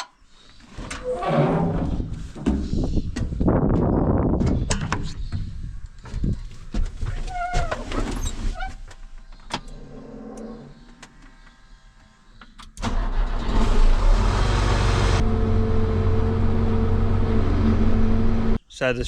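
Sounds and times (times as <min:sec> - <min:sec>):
engine starting and running: 0:12.7 - 0:18.6.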